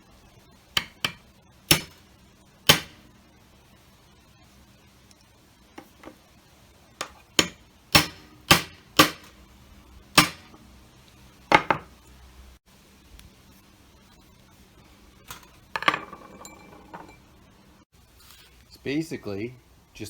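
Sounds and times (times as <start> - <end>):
hammer striking a punch: 0.8 - 2.0, 2.7 - 3.0, 7.0 - 9.4, 10.2 - 10.6.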